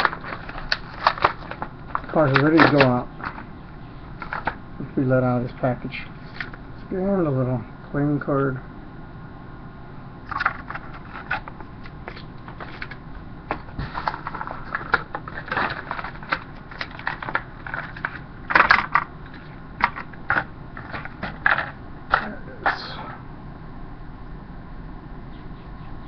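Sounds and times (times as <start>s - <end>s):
plastic packaging crackling: 0.0s - 3.5s, 4.2s - 4.6s, 10.3s - 21.8s.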